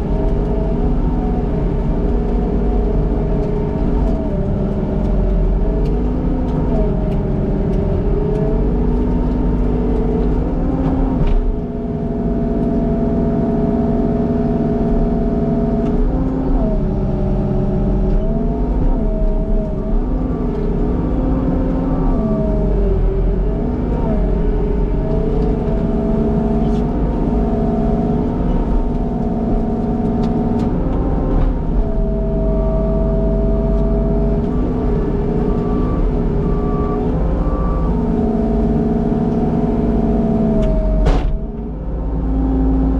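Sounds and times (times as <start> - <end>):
skid steer engine running: 0.0 - 42.9.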